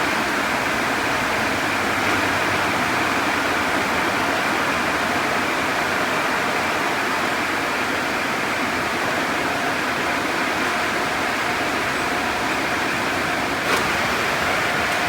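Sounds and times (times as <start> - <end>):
car wash equipment rushing: 0.0 - 5.4, 9.8 - 15.0.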